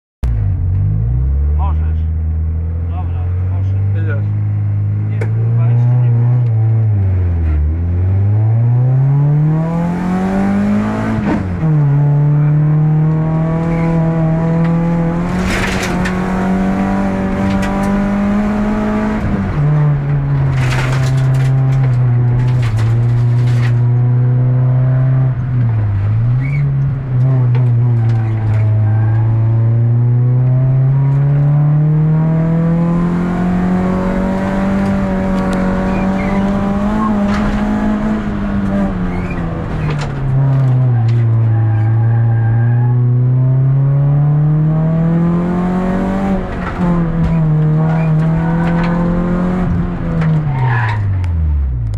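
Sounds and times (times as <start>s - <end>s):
car engine accelerating: 0.2s - 51.9s
road knocks and rattles: 13.0s - 18.5s, 19.1s - 24.1s, 25.3s - 29.3s, 33.8s - 42.4s, 46.0s - 51.9s.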